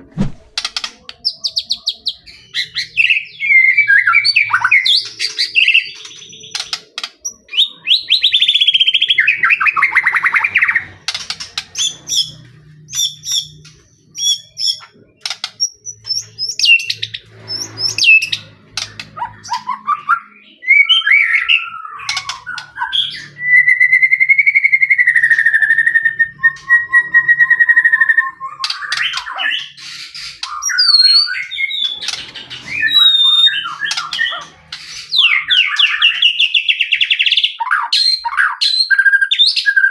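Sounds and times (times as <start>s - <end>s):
bird singing: 0.8s - 39.9s.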